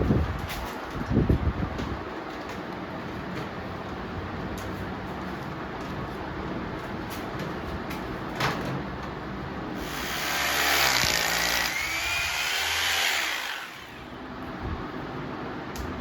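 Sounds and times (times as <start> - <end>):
electric drill whining: 9.8 - 14.1.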